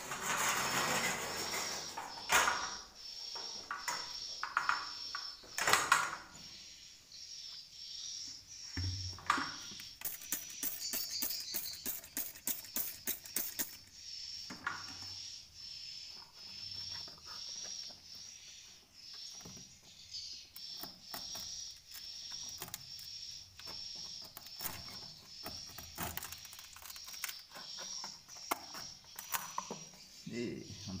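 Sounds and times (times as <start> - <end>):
swiftlets chirping: 9.4 - 15.4, 20.4 - 29.8.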